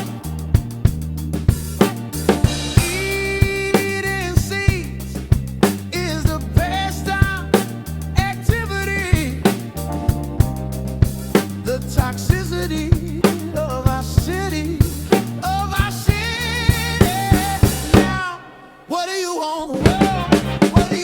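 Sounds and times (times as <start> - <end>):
bass line: 0.0 - 18.3, 19.7 - 21.0
drum kit playing: 0.0 - 18.9, 19.6 - 21.0
person singing: 2.7 - 5.2, 6.0 - 9.6, 11.7 - 21.0.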